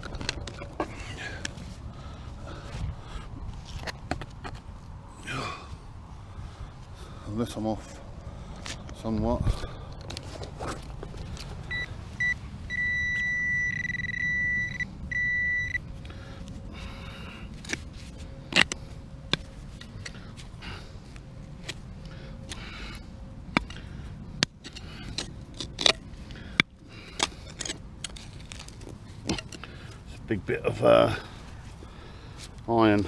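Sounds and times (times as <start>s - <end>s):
digging clicks and scrapes in stony soil: 0.0s - 5.0s, 7.3s - 13.3s, 15.9s - 33.0s
metal detector beeping: 11.7s - 15.8s.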